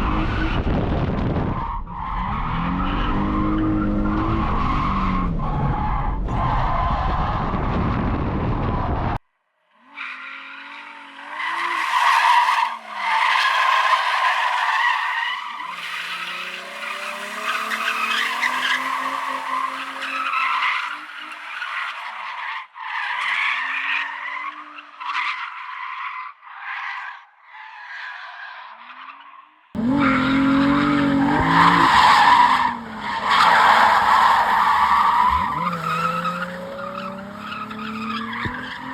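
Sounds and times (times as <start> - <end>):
engines revving: 2.0 - 6.8, 15.6 - 20.4, 29.8 - 38.9
tyres squealing: 29.8 - 38.9.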